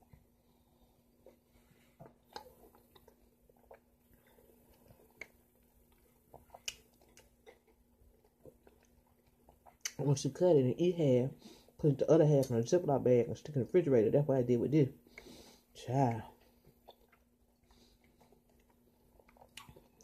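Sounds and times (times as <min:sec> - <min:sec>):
wet chewing: 0:00.0 - 0:10.1, 0:16.3 - 0:20.0
mouth clicks and smacks: 0:02.0 - 0:10.1, 0:16.7 - 0:20.0.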